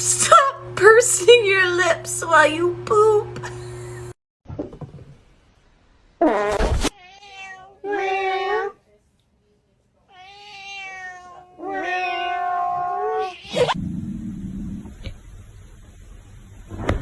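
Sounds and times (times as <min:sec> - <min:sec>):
cat meowing: 0:07.0 - 0:08.8, 0:10.1 - 0:13.8.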